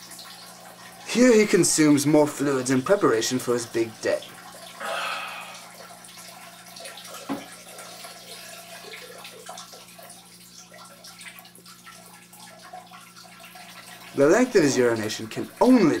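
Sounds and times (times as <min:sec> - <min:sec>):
urine splashing into toilet: 0:00.0 - 0:16.0
faint hum: 0:04.3 - 0:06.9.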